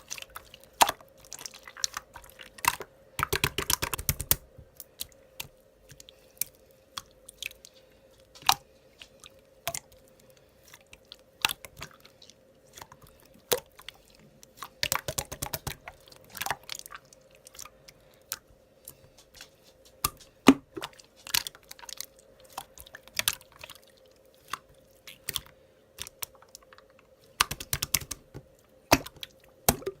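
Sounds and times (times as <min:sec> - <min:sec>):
faint steady hum: 0:00.0 - 0:30.0
slime squishing: 0:00.0 - 0:30.0.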